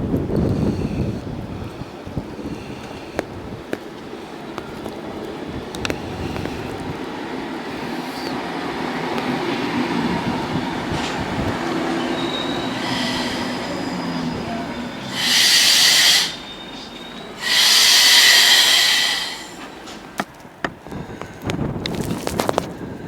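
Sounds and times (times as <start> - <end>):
train rumbling: 0.0 - 23.0
high-pitched wheel squeals: 11.9 - 20.0.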